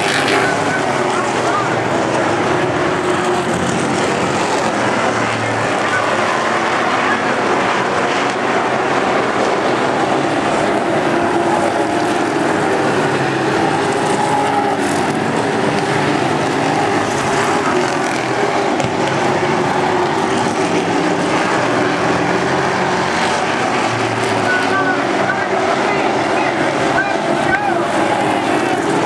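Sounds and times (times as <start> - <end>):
race truck engines running: 0.0 - 29.0.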